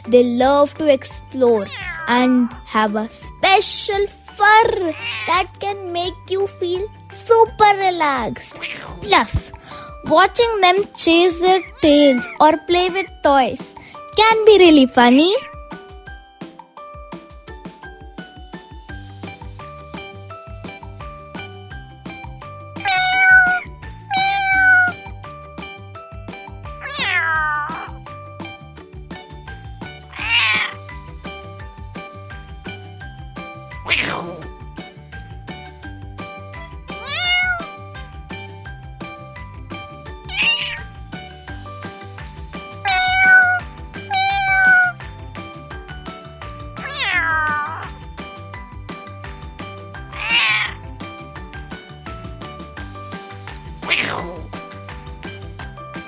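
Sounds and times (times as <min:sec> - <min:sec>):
background music with beat: 0:00.0 - 0:56.0
cat meowing: 0:01.5 - 0:02.6, 0:04.9 - 0:05.4, 0:08.5 - 0:10.2, 0:11.5 - 0:13.0, 0:22.8 - 0:25.0, 0:26.8 - 0:28.0, 0:30.1 - 0:30.8, 0:33.9 - 0:34.5, 0:36.6 - 0:38.2, 0:40.3 - 0:40.9, 0:42.8 - 0:45.0, 0:46.8 - 0:48.0, 0:50.1 - 0:50.8, 0:53.8 - 0:54.6.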